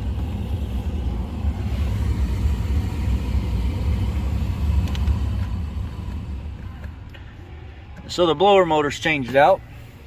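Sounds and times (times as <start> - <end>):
rush of air: 0.0 - 7.3
blower fan running: 0.0 - 10.0.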